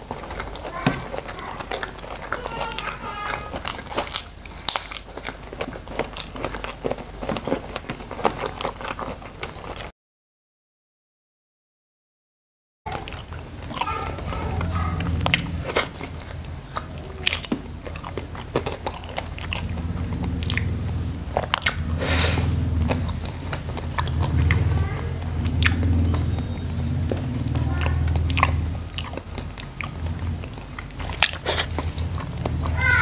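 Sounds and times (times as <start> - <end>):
chewing and lip-smacking: 0.0 - 9.9, 12.9 - 33.0
low steady hum: 12.9 - 33.0
sharp mouth clicks: 25.4 - 32.7.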